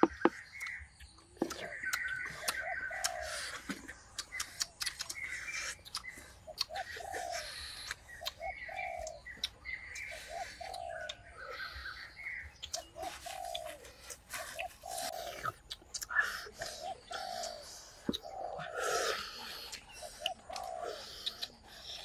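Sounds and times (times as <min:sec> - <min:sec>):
other birds chirping: 0:00.0 - 0:22.0
sharp clicks: 0:04.0 - 0:06.8.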